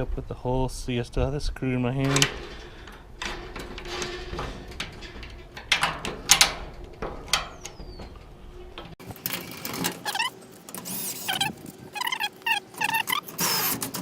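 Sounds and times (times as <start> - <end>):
hand tools clicking and knocking: 2.0 - 11.5
short high squeaks: 9.9 - 14.0
garage door opener running: 12.8 - 14.0.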